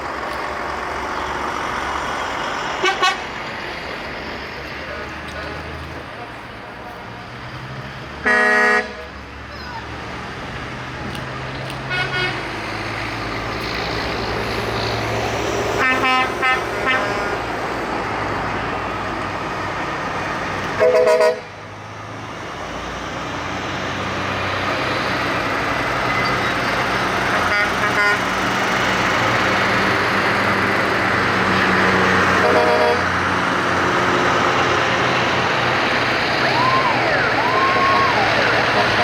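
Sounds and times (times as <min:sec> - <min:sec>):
truck engines driving past: 0:00.0 - 0:39.0
truck horn toots: 0:02.8 - 0:03.3, 0:08.2 - 0:09.1, 0:11.9 - 0:12.6, 0:15.8 - 0:17.4, 0:20.8 - 0:21.5, 0:27.3 - 0:28.4, 0:32.3 - 0:33.1.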